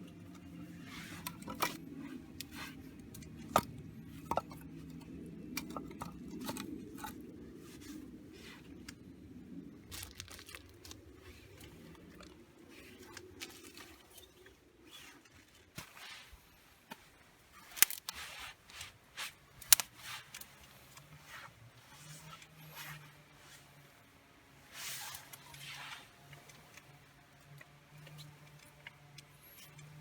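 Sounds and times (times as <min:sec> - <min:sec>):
hands rustling materials: 0:00.1 - 0:23.8.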